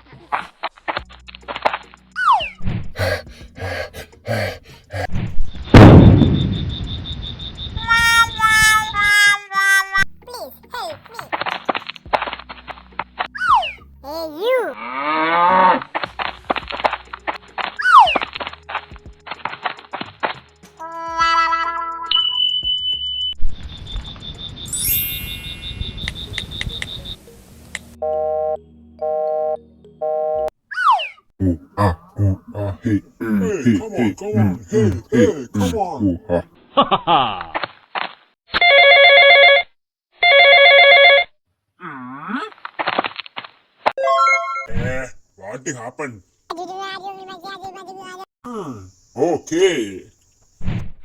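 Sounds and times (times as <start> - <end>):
heavy boom: 5.8 - 6.8
falling whistle: 21.6 - 23.0.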